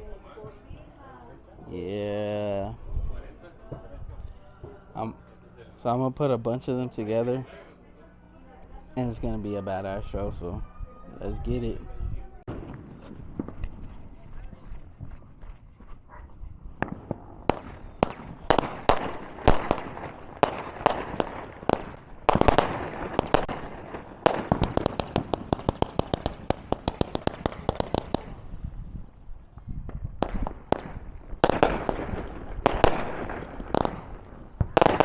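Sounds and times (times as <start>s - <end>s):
rapid-fire firework pops: 12.5s - 15.1s, 16.8s - 28.9s, 29.6s - 35.0s
fireworks bangs and crackles: 12.5s - 15.4s, 16.6s - 35.0s.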